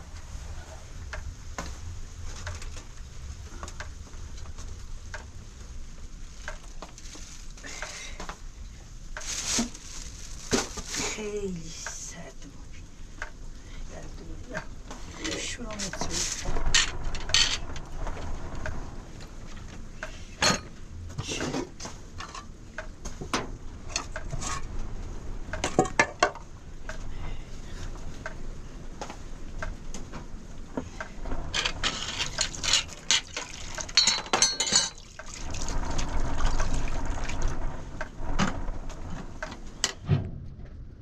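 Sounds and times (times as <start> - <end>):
clatter of dishes: 14.6 - 17.8, 20.4 - 22.5, 31.6 - 35.1
water pouring and splashing: 30.9 - 39.8.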